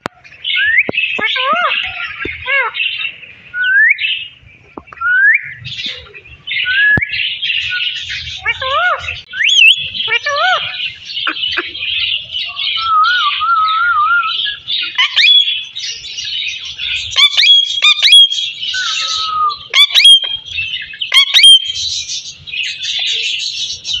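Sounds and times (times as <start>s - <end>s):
parrot whistling: 8.5s - 10.7s, 15.0s - 15.7s, 17.2s - 20.4s, 21.1s - 21.8s.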